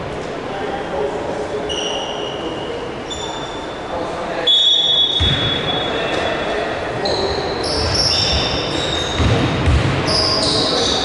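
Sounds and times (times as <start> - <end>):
spectators talking: 0.0 - 11.0
shoe squeaks: 1.7 - 9.3, 10.1 - 11.0
basketball bouncing on court: 5.1 - 5.7, 7.6 - 11.0.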